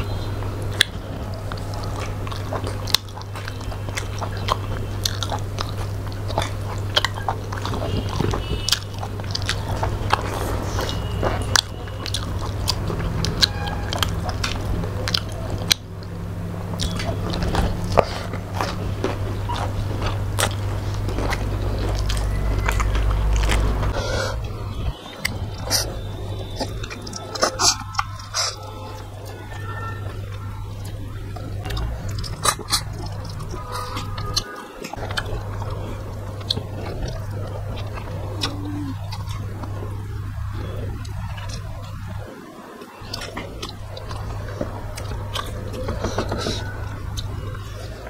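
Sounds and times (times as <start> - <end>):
people chewing food: 0.0 - 48.0
steady low hum: 0.0 - 48.0
wet mouth clicks and smacks: 0.7 - 16.1, 16.7 - 18.8, 19.4 - 24.0, 30.8 - 42.2.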